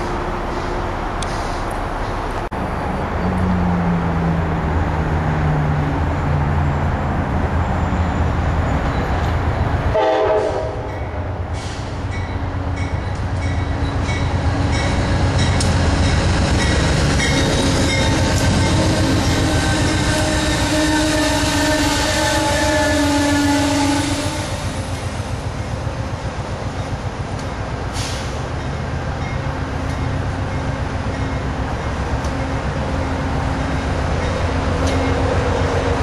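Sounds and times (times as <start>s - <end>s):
train coaches rumbling past: 0.0s - 36.0s
train horn blast: 9.9s - 11.1s, 17.5s - 25.0s
wheels clacking over rail joints: 33.4s - 36.0s.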